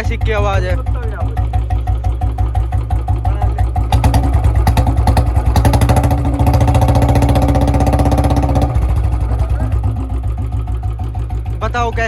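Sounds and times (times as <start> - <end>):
motorcycle engine thumping and revving: 0.0 - 12.0.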